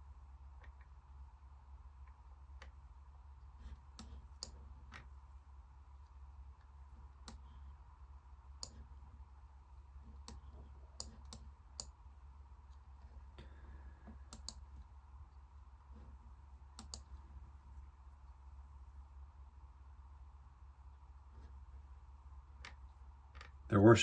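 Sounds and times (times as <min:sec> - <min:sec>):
low electrical hum: 0:00.0 - 0:24.0
computer mouse clicks: 0:03.5 - 0:05.1, 0:06.6 - 0:07.6, 0:08.6 - 0:08.9, 0:10.1 - 0:12.0, 0:14.0 - 0:14.9, 0:16.7 - 0:17.2.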